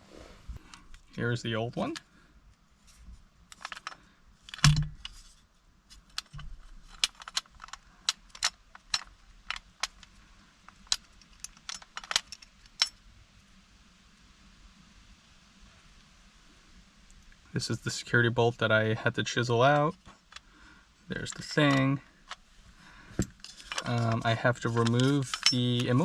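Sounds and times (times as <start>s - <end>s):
metallic clicks and jingles of keys: 23.4s - 26.0s.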